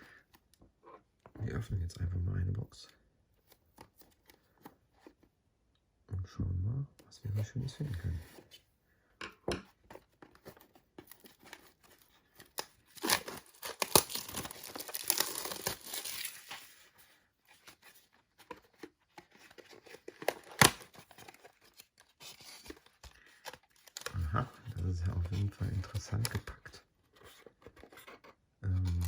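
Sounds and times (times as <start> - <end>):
wrapping tearing and crinkling: 10.5 - 29.0.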